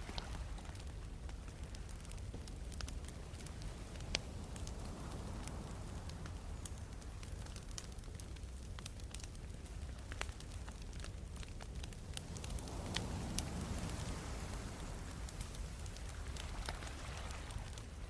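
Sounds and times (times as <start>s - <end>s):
sea waves: 0.0s - 1.0s, 12.3s - 18.0s
burning logs popping: 0.0s - 18.0s
campfire crackling: 0.0s - 18.0s.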